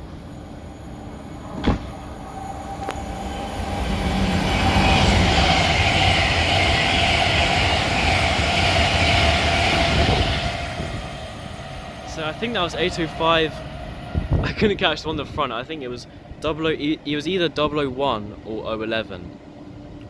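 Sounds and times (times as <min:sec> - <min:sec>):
train passing: 0:00.0 - 0:20.0
short knock: 0:01.6 - 0:01.9.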